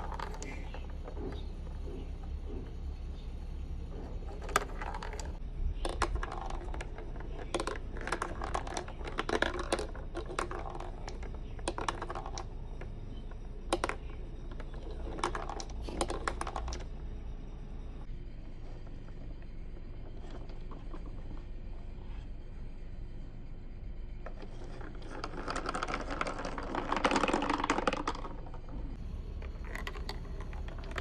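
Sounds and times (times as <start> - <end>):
marbles clattering down plastic track: 0.0 - 1.4, 4.3 - 16.9, 24.3 - 29.0, 29.6 - 31.0
steady low hum: 0.0 - 31.0.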